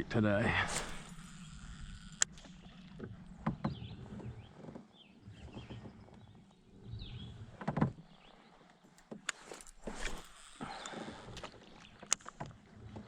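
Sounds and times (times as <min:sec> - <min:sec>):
birds chirping: 0:00.0 - 0:12.5.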